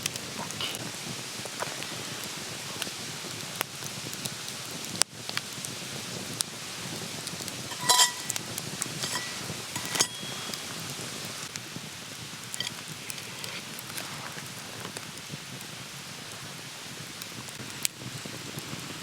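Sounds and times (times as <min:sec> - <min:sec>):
campfire crackling and popping: 0:00.0 - 0:19.0
metal cookware clinking: 0:07.7 - 0:11.2, 0:12.6 - 0:12.8.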